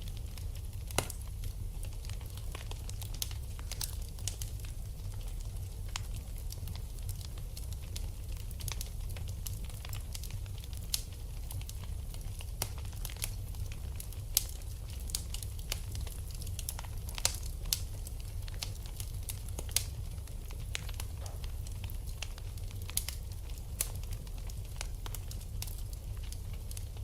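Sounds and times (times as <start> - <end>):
fireplace fire crackling: 0.0 - 27.0
low fire rumble: 0.0 - 27.0
sharp fire pops: 0.3 - 1.3.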